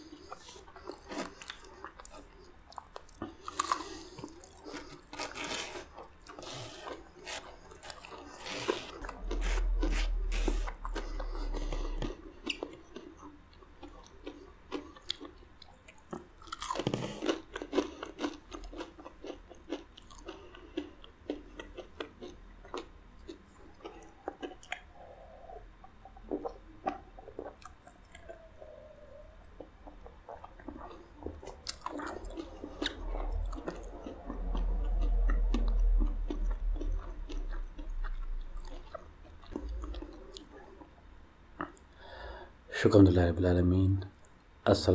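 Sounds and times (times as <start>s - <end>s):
chewing and swallowing food: 0.0s - 42.2s
low rumble: 8.6s - 12.8s, 29.8s - 41.2s.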